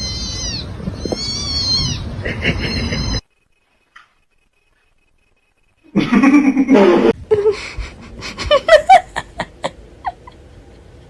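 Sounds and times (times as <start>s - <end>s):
person laughing: 2.2s - 3.2s, 5.9s - 10.5s.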